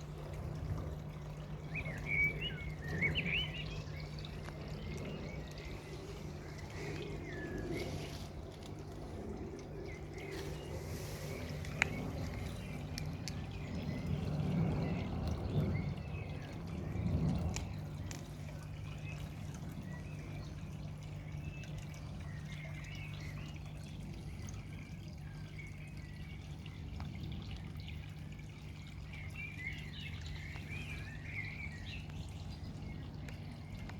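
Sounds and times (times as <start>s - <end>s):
steady low hum: 0.0s - 23.0s
birds chirping: 0.0s - 33.9s
water trickling and dripping: 0.0s - 33.9s.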